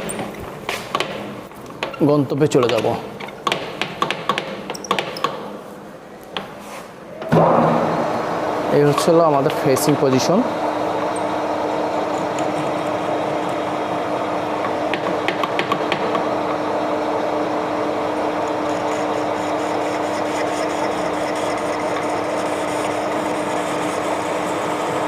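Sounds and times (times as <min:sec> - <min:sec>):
lathe motor hum: 0:07.7 - 0:25.0.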